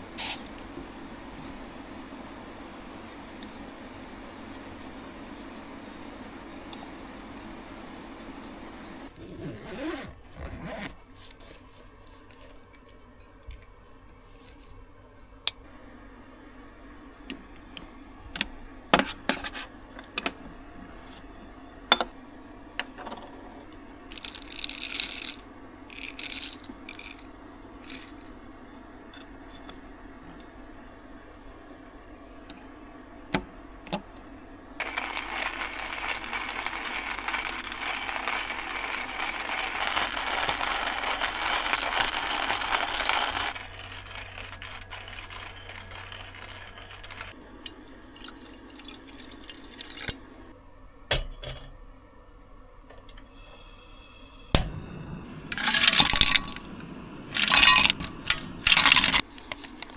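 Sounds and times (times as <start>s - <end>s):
steady hiss: 0.0s - 9.1s
small objects clicking and knocking: 24.1s - 28.3s, 34.8s - 47.4s, 55.5s - 56.7s, 57.3s - 59.9s.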